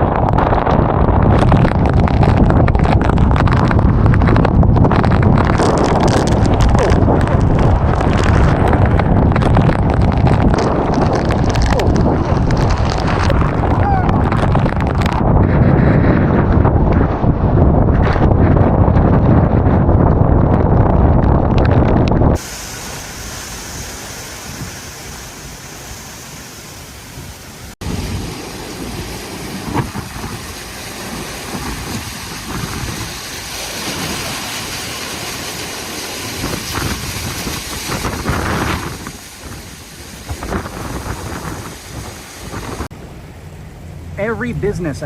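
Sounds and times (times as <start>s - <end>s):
hurricane wind: 0.0s - 45.0s
rain hissing: 1.5s - 15.1s, 22.4s - 44.8s.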